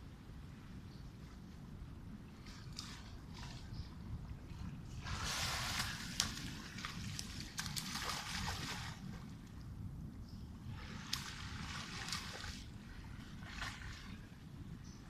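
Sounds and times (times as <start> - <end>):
steady low rumble: 0.0 - 15.0
sea lions splashing in water: 5.0 - 9.2, 10.8 - 14.2.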